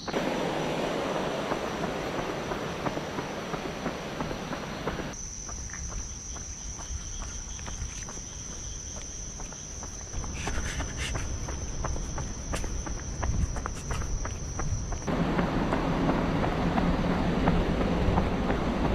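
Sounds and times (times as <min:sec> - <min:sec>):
wind rumble on microphone: 0:00.0 - 0:05.2, 0:10.2 - 0:18.9
insects trilling: 0:00.0 - 0:15.1.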